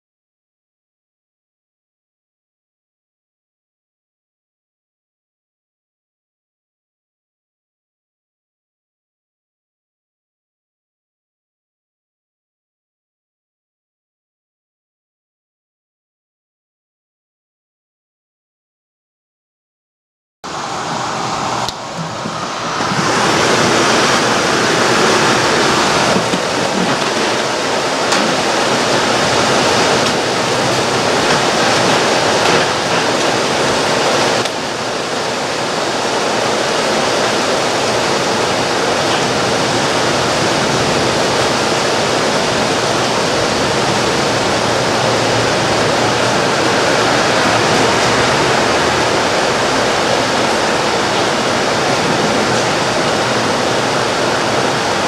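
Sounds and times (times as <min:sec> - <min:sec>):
heavy rain hiss: 0:20.5 - 0:55.0.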